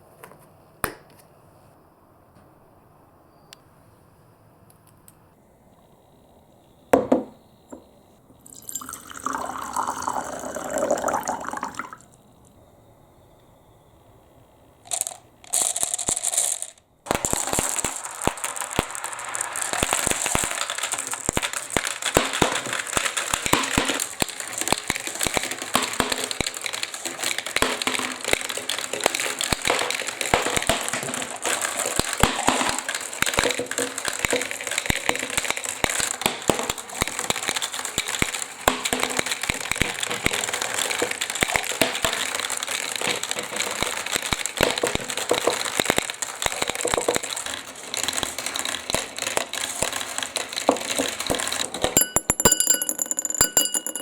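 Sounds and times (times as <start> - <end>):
knock: 7.0 - 7.4
water running down plastic marble run: 8.4 - 12.1, 14.9 - 54.0.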